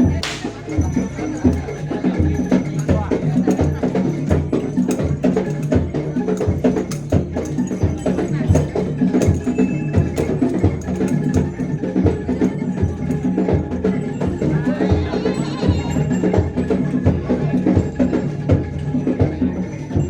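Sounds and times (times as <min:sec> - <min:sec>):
drums: 0:00.0 - 0:20.0
sharp clicking strikes: 0:00.1 - 0:00.8.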